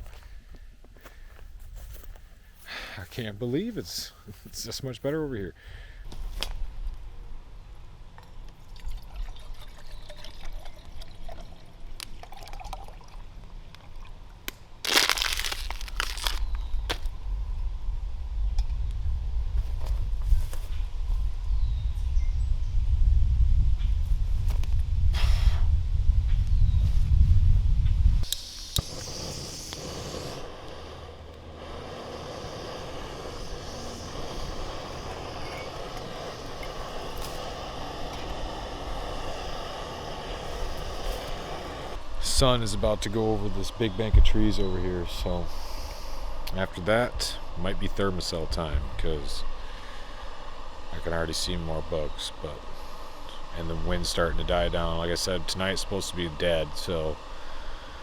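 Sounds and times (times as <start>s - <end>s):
outdoor background noise: 0.0s - 58.0s
wind rumbling on microphone: 15.7s - 45.4s
distant engine drone: 28.2s - 58.0s.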